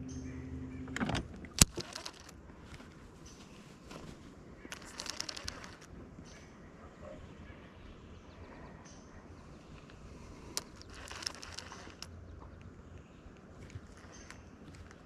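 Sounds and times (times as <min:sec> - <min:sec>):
electric motor humming: 0:00.0 - 0:02.4, 0:04.7 - 0:05.9, 0:10.2 - 0:12.2
quick light ticks: 0:04.7 - 0:05.9, 0:09.8 - 0:15.0.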